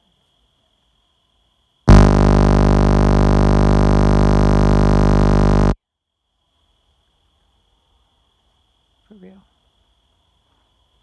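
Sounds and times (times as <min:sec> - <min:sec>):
loud electronic buzz: 0:01.9 - 0:05.8.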